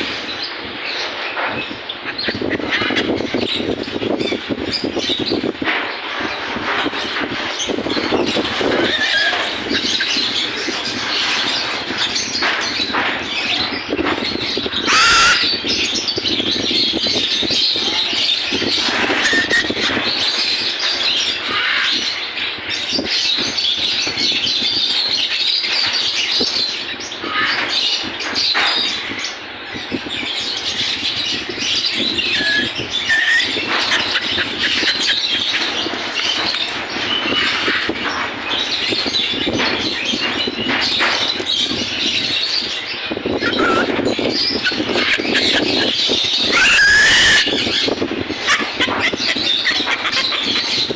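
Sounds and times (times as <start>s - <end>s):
birds chattering and squawking: 0.0s - 50.9s
loud bird squawk: 14.7s - 15.8s, 18.4s - 20.2s, 31.4s - 38.0s, 43.2s - 50.9s.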